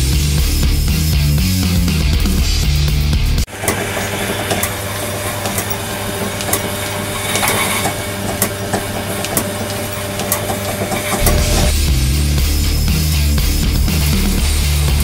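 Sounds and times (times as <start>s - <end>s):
machine humming: 3.5s - 12.8s.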